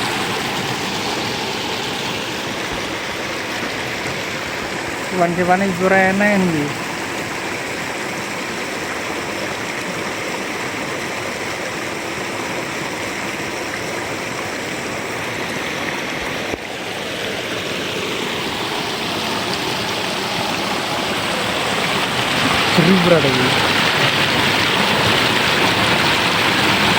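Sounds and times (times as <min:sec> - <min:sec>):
river water flowing: 0:00.0 - 0:26.9.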